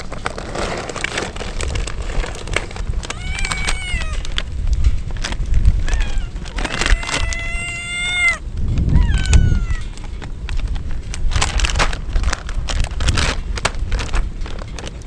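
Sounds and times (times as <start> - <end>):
short crackling noises: 0.0 - 15.0
low rumble: 1.5 - 15.0
kitten meowing: 3.1 - 4.4, 5.8 - 10.0.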